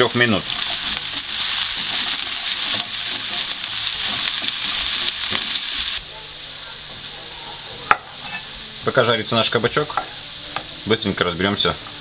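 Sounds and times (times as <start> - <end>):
vegetables sizzling in a frying pan: 0.0 - 12.0
wooden spatula stirring: 0.5 - 6.0.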